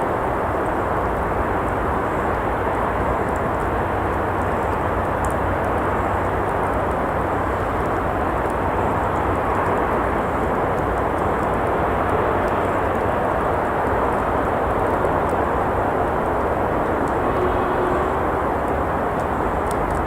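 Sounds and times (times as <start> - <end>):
road traffic rumble: 0.0 - 20.0
faint clicks: 2.7 - 6.6, 16.3 - 20.0.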